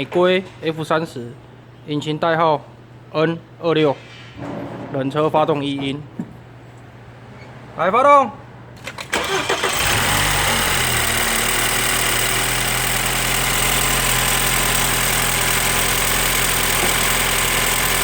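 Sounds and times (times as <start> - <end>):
engine cranking: 8.8 - 18.0.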